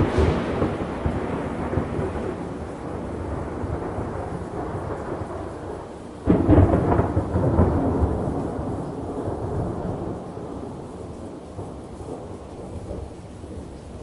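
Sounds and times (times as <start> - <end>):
thunder crack: 0.0 - 5.5, 6.2 - 10.8
rumbling thunder: 0.0 - 14.0
steady rain: 0.0 - 14.0.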